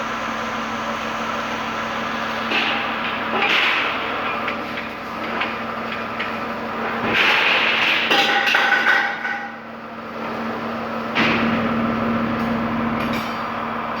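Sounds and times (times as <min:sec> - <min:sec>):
knocks and clatter: 0:02.5 - 0:09.5.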